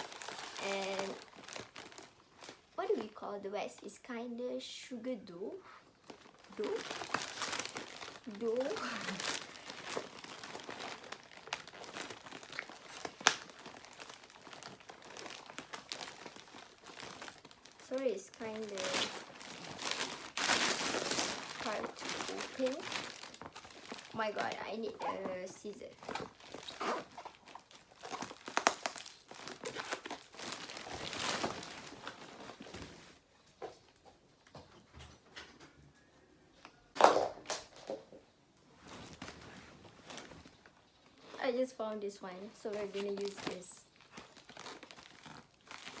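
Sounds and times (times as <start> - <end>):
packaging crinkling and crackling: 0.0 - 3.2, 6.0 - 33.2, 38.8 - 41.4, 42.6 - 46.0.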